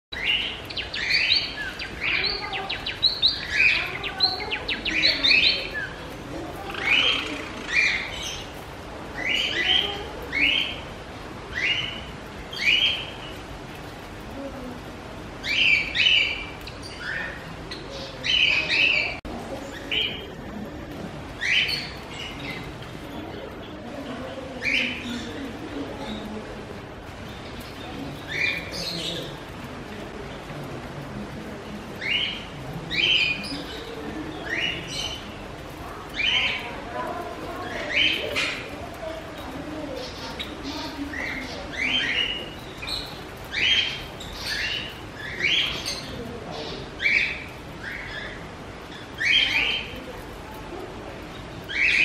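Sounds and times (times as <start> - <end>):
small birds chirping: 0.1 - 52.0.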